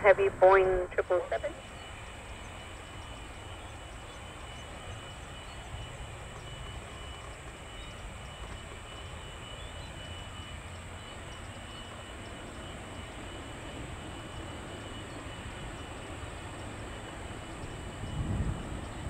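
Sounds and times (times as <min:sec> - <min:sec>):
low outdoor rumble: 0:00.0 - 0:11.4.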